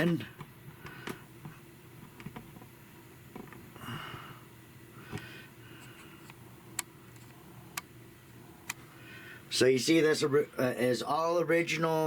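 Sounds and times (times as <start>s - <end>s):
soft breath or sniff: 8.8s - 9.5s.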